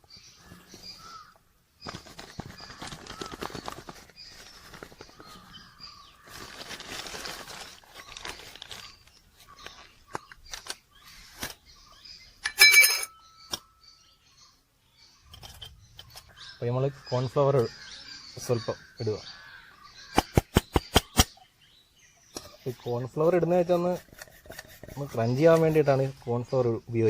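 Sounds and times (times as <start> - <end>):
birds chirping: 0.0 - 27.0
dry ingredients rustling and scraping: 3.2 - 11.7, 22.4 - 26.4.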